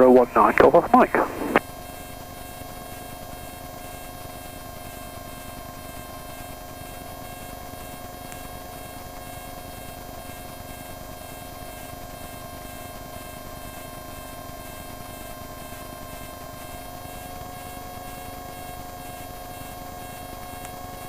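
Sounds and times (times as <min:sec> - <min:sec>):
aircraft engine hum: 0:00.0 - 0:01.6
steady intercom tones: 0:00.0 - 0:01.6.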